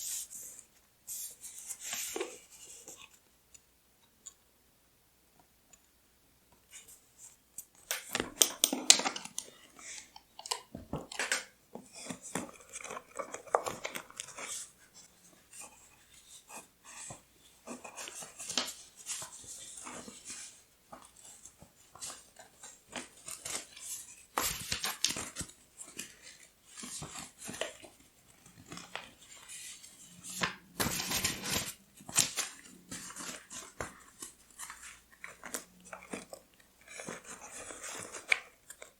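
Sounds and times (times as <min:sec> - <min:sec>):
paper crinkling and rustling: 0:08.0 - 0:38.9.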